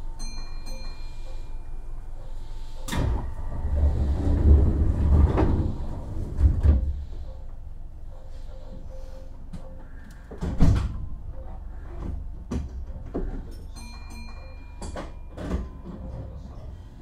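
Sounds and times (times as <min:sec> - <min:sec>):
train wheels rumbling on rail: 0:02.9 - 0:07.5.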